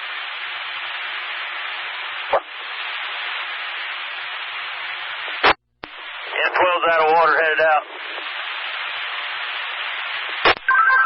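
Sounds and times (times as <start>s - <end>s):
radio static hiss: 0.0s - 11.0s
short radio burst: 2.3s - 2.5s.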